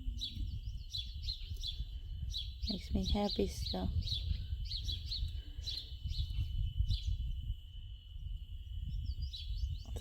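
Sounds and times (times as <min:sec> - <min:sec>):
small birds chirping: 0:00.0 - 0:10.0
wind rumble on microphone: 0:00.0 - 0:10.0.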